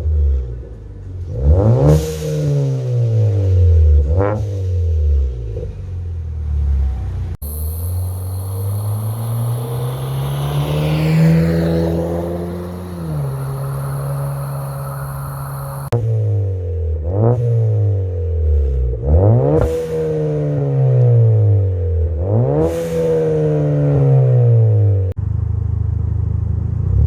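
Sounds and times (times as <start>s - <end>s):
car exhaust revving: 7.4s - 16.0s.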